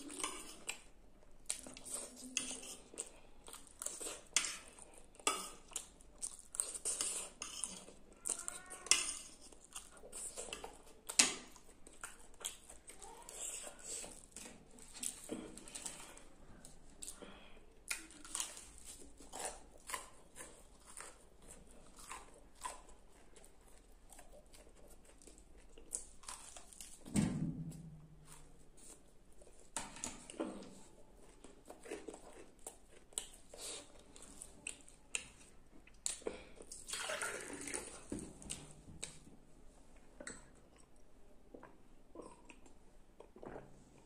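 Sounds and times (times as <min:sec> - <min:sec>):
chewing and mouth smacks: 0:17.8 - 0:27.0.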